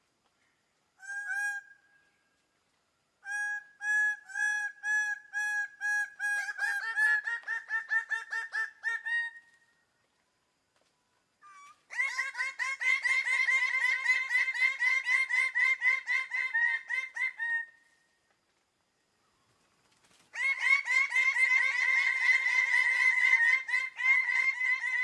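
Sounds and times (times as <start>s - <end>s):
bird-of-paradise calling: 0.4s - 2.4s, 3.2s - 9.8s, 11.4s - 18.1s, 19.2s - 25.0s.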